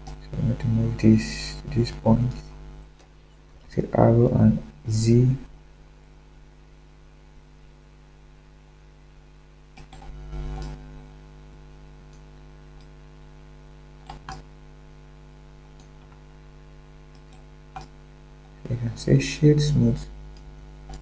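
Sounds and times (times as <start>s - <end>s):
electrical mains hum: 0.0s - 21.0s
faint clicks: 9.7s - 10.8s, 14.0s - 14.5s, 17.1s - 18.7s.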